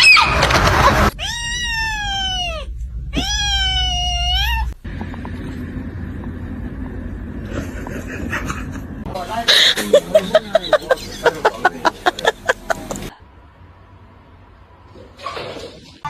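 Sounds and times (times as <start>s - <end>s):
low background hum: 0.1s - 15.2s
cat meowing: 1.0s - 4.8s.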